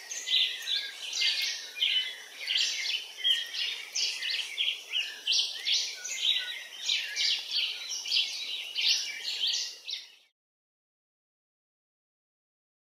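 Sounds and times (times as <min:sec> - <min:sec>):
birds chirping: 0:00.0 - 0:10.3.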